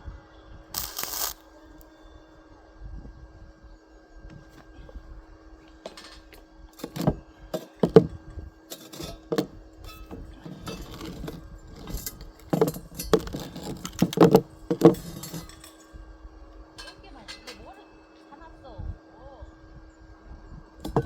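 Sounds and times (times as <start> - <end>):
faint steady hum: 0.0 - 21.0
metal parts clanking: 5.8 - 16.0, 16.6 - 18.0.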